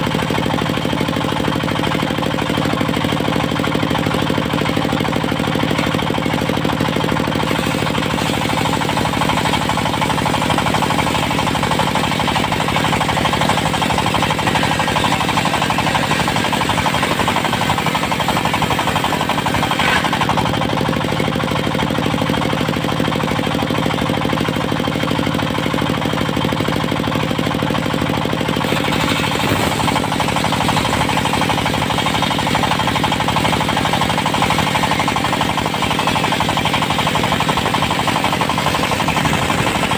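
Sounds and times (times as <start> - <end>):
diesel engine running: 0.0 - 39.9
sawmill hard rapid clatter: 0.0 - 39.9.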